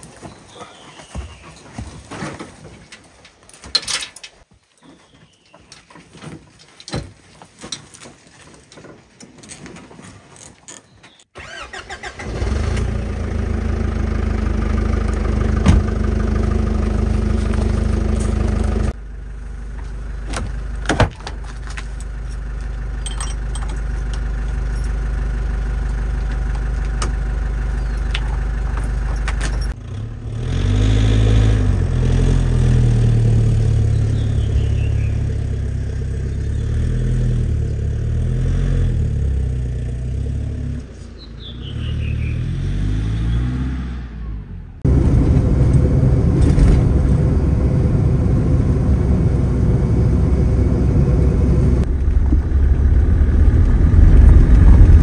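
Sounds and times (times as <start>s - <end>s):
car engine running: 12.4s - 30.3s, 31.2s - 42.3s, 44.4s - 55.0s.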